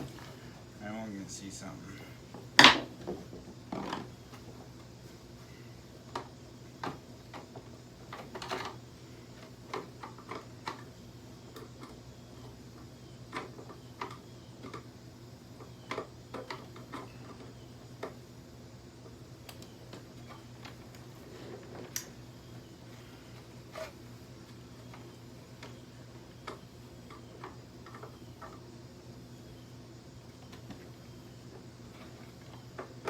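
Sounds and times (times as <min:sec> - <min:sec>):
steady low hum: 0:00.0 - 0:33.0
plastic parts clicking and knocking: 0:26.4 - 0:28.6.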